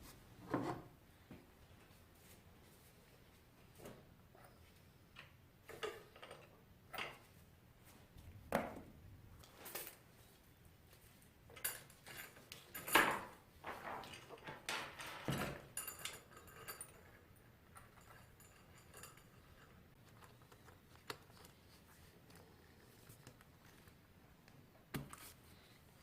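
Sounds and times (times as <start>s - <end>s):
metal parts and tools clinking: 11.5s - 19.9s.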